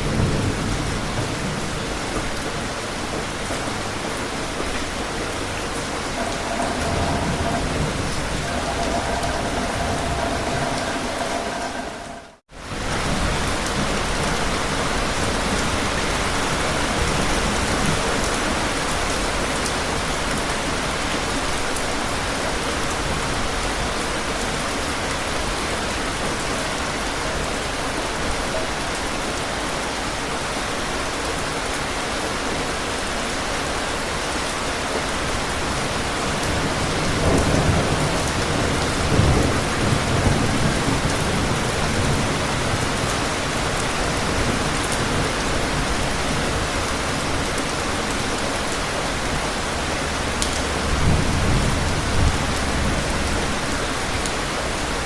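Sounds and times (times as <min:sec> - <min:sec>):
low rumble of thunder: 0:00.0 - 0:03.8, 0:06.1 - 0:14.8, 0:36.3 - 0:47.4, 0:49.8 - 0:54.3
steady rain falling: 0:00.0 - 0:55.0.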